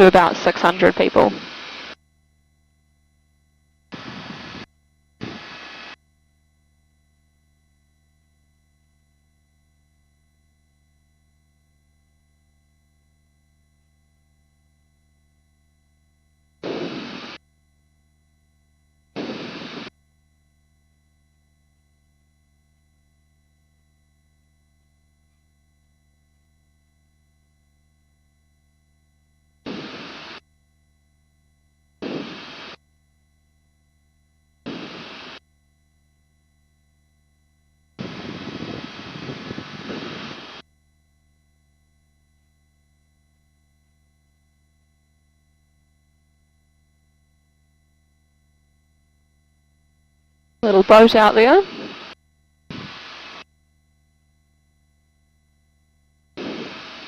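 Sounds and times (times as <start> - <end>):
faint electronic intercom hum: 0.0 - 2.0, 50.6 - 53.4
bursts of noise: 56.4 - 57.0.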